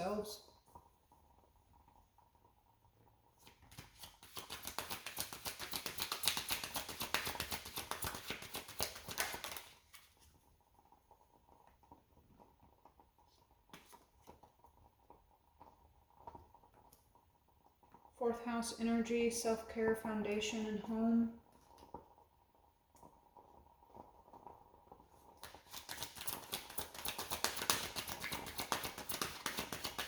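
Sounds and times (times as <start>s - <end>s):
cards being shuffled: 3.4s - 10.2s, 25.4s - 30.0s.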